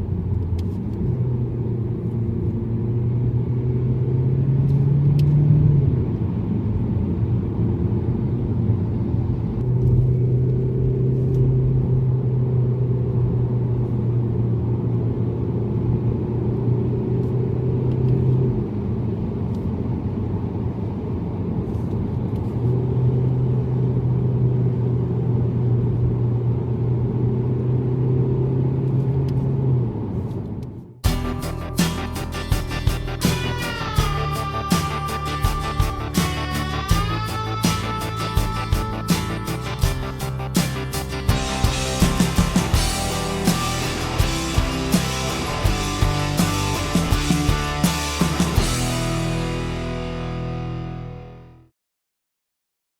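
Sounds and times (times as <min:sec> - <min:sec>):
car engine and road noise: 0:00.0 - 0:51.4
music: 0:31.0 - 0:51.7.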